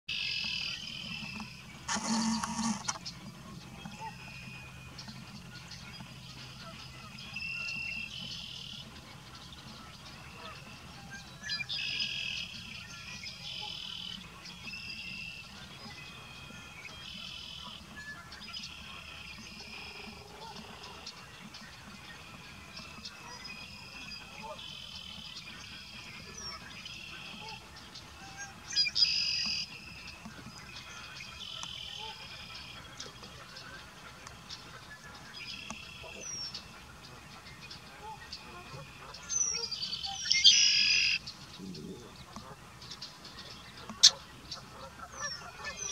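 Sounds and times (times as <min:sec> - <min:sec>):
sharp clicks: 0:01.4 - 0:03.1
buzzy insect call: 0:01.9 - 0:03.0
high trilling calls: 0:39.5 - 0:41.2.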